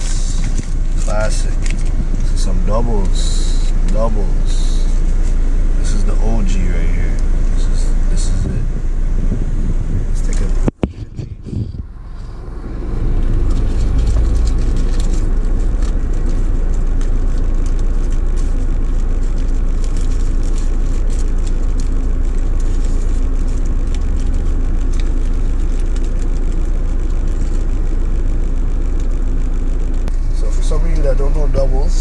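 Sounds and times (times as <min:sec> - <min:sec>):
paper wrapper crinkling: 0:00.0 - 0:05.4, 0:12.8 - 0:30.3
car engine idling: 0:00.0 - 0:32.0.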